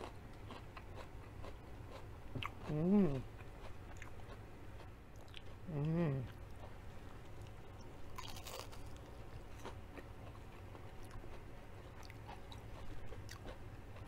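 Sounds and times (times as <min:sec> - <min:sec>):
person chewing crunchy food: 0:00.0 - 0:14.0
crunchy bite: 0:08.2 - 0:09.8.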